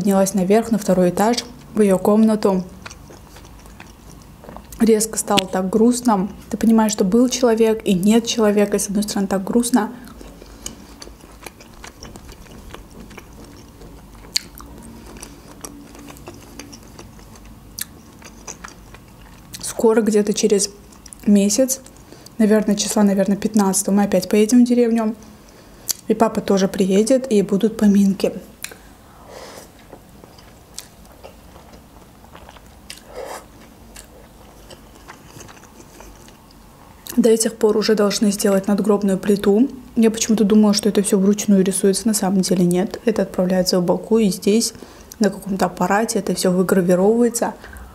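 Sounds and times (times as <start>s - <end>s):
chewing olives: 0.8s - 5.7s, 9.4s - 22.4s, 28.2s - 28.9s, 29.5s - 37.2s.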